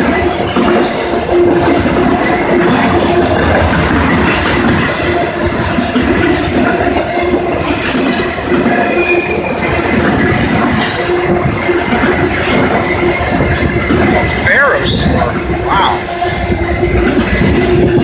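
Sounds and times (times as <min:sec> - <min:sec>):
freight train wheels rumbling: 0:00.0 - 0:18.0
high-pitched wheel squeals: 0:04.3 - 0:05.8.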